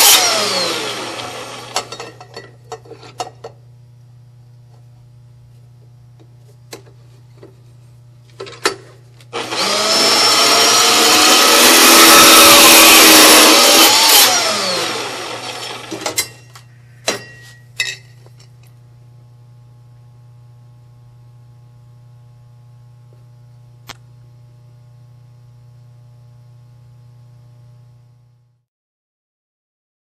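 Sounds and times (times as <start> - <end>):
band saw cutting metal: 0.0 - 2.1, 9.3 - 16.4
low electrical hum: 0.2 - 11.2, 14.3 - 28.6
sharp metallic clanks: 15.6 - 18.2.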